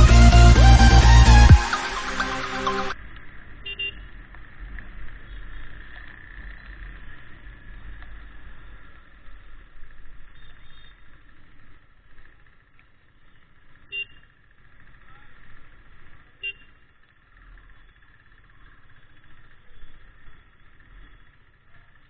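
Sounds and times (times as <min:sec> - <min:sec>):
brief high tones: 0:00.0 - 0:03.0
motorcycle rumble: 0:02.9 - 0:22.0.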